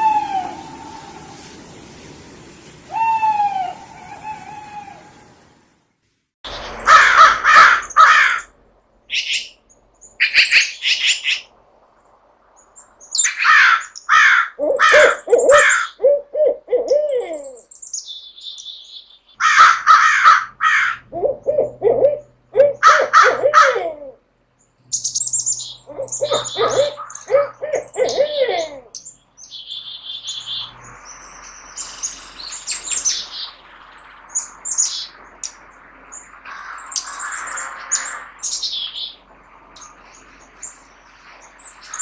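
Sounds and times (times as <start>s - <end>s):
owl hoots: 0.0s - 1.6s, 2.9s - 5.3s, 13.4s - 17.6s, 19.4s - 24.2s, 25.8s - 28.9s
owl screeches: 13.3s - 16.0s.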